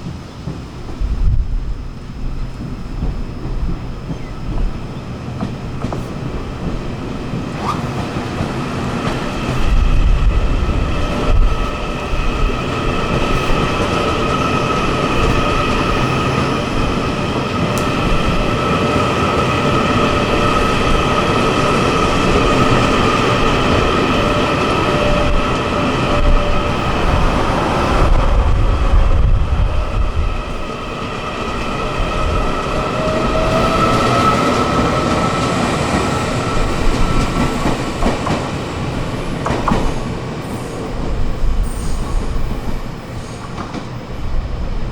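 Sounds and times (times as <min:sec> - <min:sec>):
train wheels rumbling on rail: 0:00.0 - 0:44.9.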